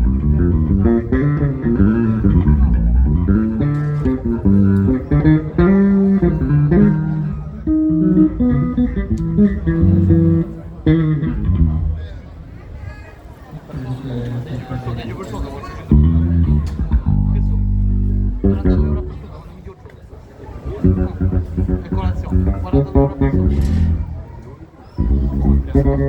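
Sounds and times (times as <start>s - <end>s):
electric bass guitar riffs: 0.0s - 12.0s, 15.9s - 19.4s, 20.8s - 24.4s, 25.0s - 26.0s.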